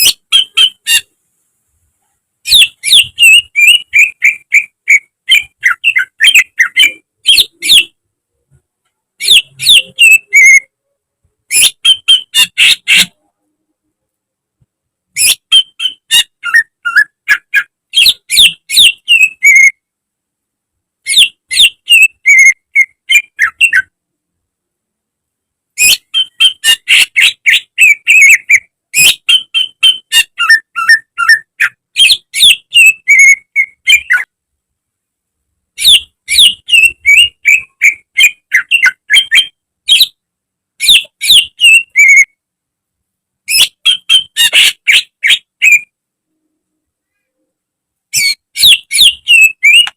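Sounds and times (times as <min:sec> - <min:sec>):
bird singing whistled notes: 0:02.5 - 0:08.0, 0:09.2 - 0:10.7, 0:11.5 - 0:13.2, 0:15.2 - 0:19.8, 0:21.1 - 0:23.9, 0:25.8 - 0:34.3, 0:35.8 - 0:40.2, 0:40.8 - 0:42.3, 0:43.5 - 0:45.9, 0:48.1 - 0:49.9.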